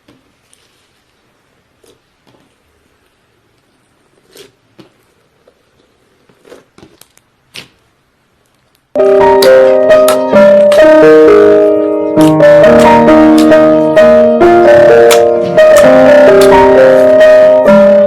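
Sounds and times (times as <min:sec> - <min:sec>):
piano-like keyboard music: 0:09.0 - 0:18.0.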